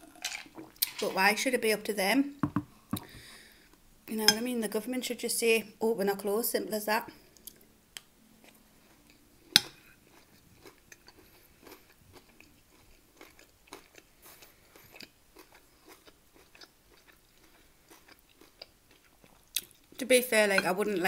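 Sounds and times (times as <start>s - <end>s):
wet chewing with mouth clicks: 8.4s - 20.0s.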